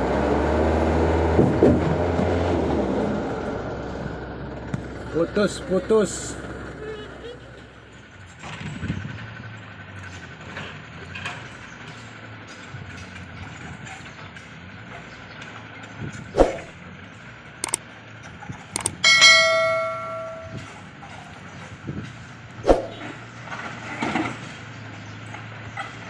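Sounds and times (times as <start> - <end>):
low engine hum: 0.0 - 26.0
loud ringing metallic clang: 18.8 - 20.8.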